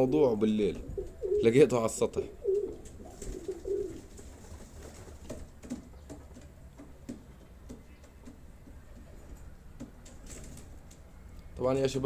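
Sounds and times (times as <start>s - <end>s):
pigeons cooing: 0.8s - 1.7s, 2.3s - 6.2s
faint taps and rustles: 2.7s - 11.1s.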